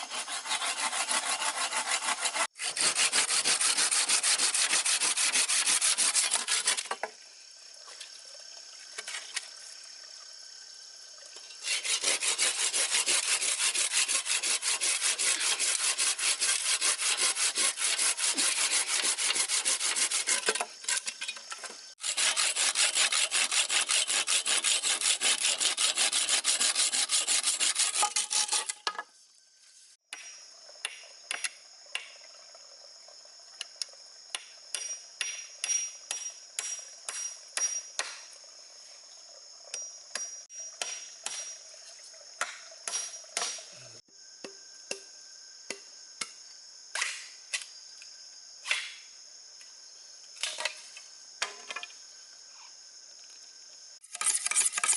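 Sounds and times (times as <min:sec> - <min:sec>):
wood being sawn: 0:00.0 - 0:07.0, 0:11.6 - 0:20.6, 0:22.0 - 0:28.8
insects trilling: 0:00.0 - 0:54.9.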